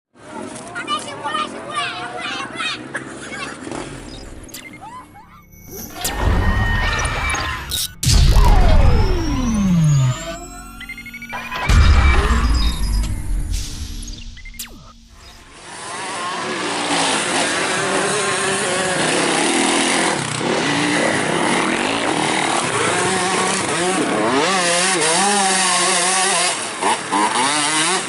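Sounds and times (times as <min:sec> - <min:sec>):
motocross bikes revving: 0:02.8 - 0:04.8, 0:15.4 - 0:28.0.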